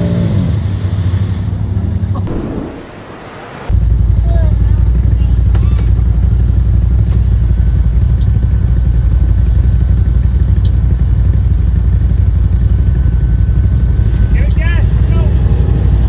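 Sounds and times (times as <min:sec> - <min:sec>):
vehicle engine running: 0:00.0 - 0:02.3, 0:03.7 - 0:16.0
faint steady whine: 0:07.4 - 0:16.0.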